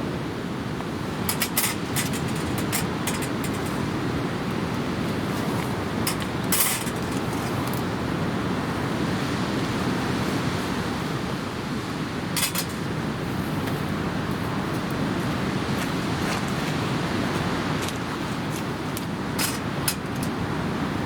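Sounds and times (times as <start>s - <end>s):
steady rushing noise: 1.0s - 20.3s
short metallic clinks: 1.3s - 3.8s, 6.1s - 7.9s, 12.4s - 12.9s, 19.4s - 20.4s.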